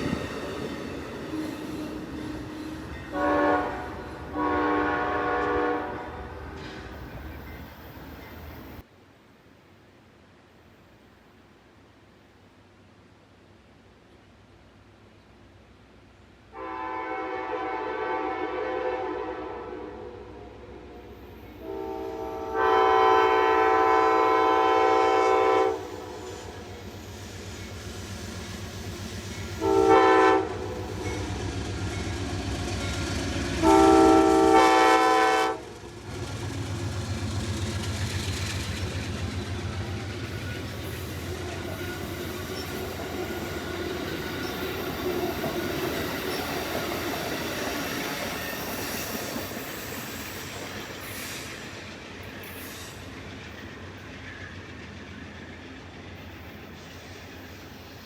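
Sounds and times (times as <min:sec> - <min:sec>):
train wheels rumbling on rails: 0:00.0 - 0:08.9, 0:20.8 - 0:58.0
locomotive horn blasts: 0:03.1 - 0:06.6, 0:16.5 - 0:26.3, 0:29.6 - 0:31.4, 0:33.5 - 0:35.7.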